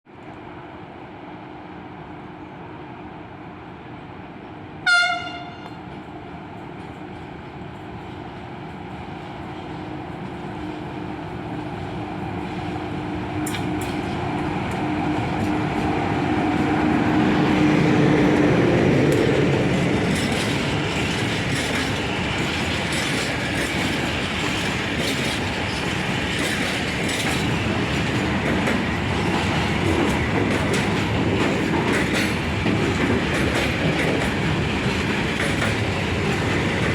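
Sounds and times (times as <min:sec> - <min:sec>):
locomotive humming: 0:00.2 - 0:36.9
locomotive horn blast: 0:04.8 - 0:05.8
train wheels clacking over rail joints: 0:18.3 - 0:36.9.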